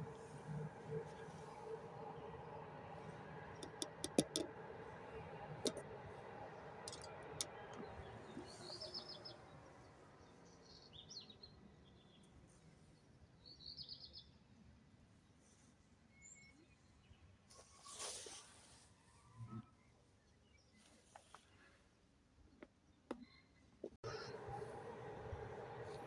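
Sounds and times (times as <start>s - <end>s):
train rumbling: 0.0s - 10.2s, 24.0s - 26.0s
small birds chirping: 6.9s - 12.3s.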